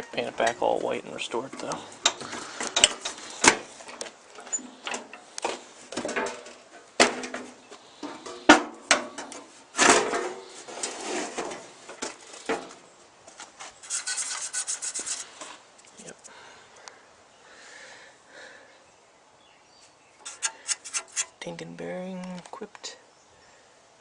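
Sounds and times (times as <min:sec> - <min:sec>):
handling knocks and clicks: 0:01.4 - 0:10.4
clattering handling noises: 0:01.4 - 0:13.8.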